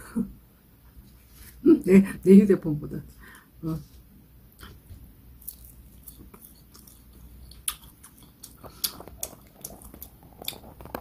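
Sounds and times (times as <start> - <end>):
chewing and biting dried fish: 5.4 - 11.0
wet mouth clicks: 7.5 - 11.0.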